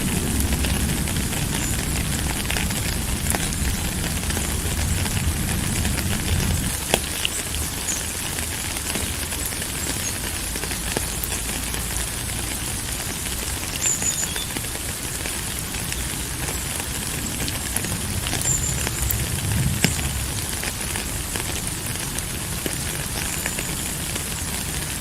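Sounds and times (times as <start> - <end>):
low rumble: 0.0 - 6.9, 17.1 - 22.0
rain falling: 0.0 - 25.0
raindrop clicks: 0.0 - 25.0.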